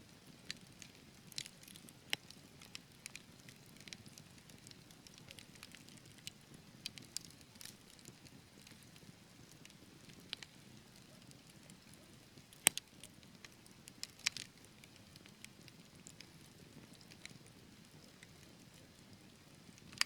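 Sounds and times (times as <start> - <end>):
logs crackling in fireplace: 0.0 - 20.0.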